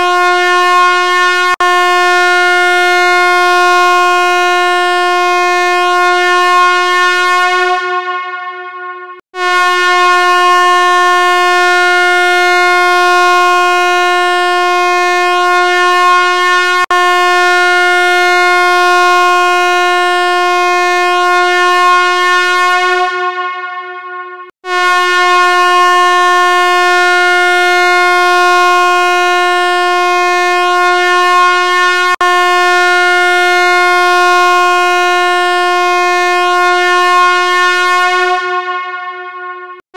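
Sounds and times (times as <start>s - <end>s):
buzzy electronic tone: 6.1s - 11.7s, 22.8s - 26.6s, 38.0s - 39.8s.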